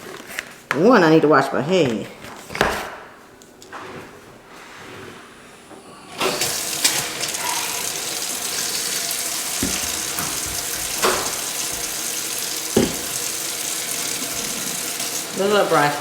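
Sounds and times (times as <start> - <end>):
water running into sink: 6.1 - 16.0.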